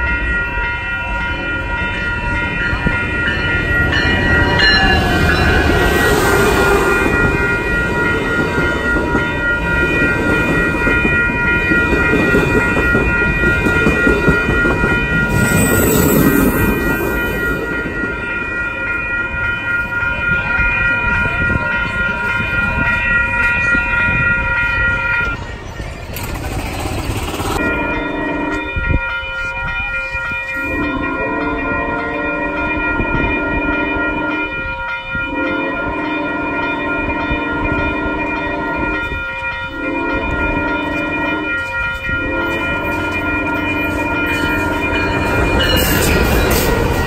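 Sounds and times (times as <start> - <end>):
train rumble: 0.0 - 47.0
train horn blasts: 27.6 - 29.0, 30.6 - 46.0.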